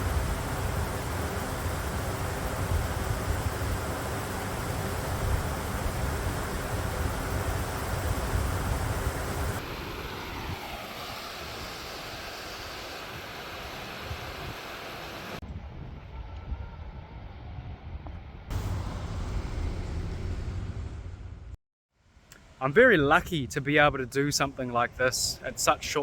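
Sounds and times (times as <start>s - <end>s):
wind buffeting microphone: 0.0s - 13.3s
outdoor rushing noise: 0.0s - 21.6s.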